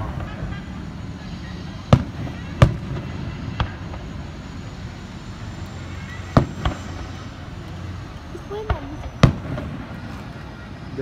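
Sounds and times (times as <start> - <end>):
firework shells booming: 0.0 - 0.7, 1.9 - 4.3, 6.2 - 7.4, 8.6 - 10.4.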